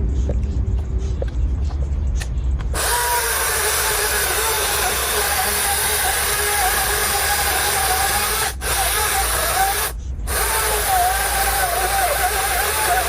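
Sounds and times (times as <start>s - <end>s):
chainsaw cutting: 2.8s - 13.0s.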